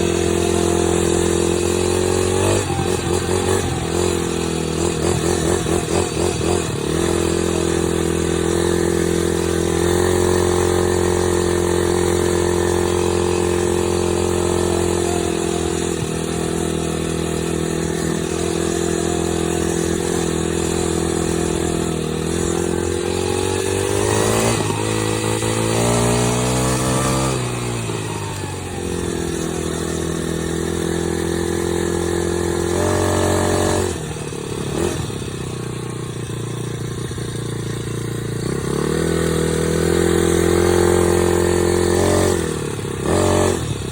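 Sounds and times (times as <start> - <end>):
dirt bike engine running: 0.0 - 43.9.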